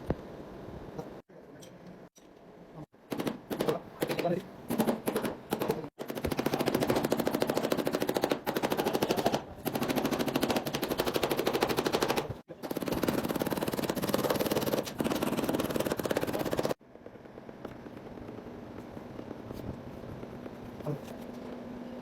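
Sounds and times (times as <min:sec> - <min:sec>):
power tool hammering: 0:03.1 - 0:18.5.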